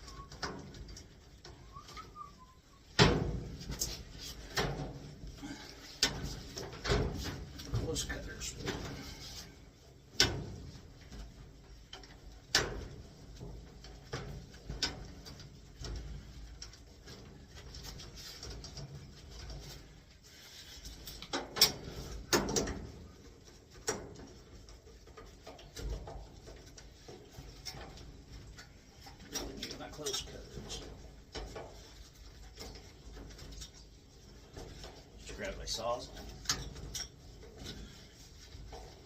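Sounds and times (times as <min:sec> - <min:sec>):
hand tools clicking and clanking: 0:21.1 - 0:39.0.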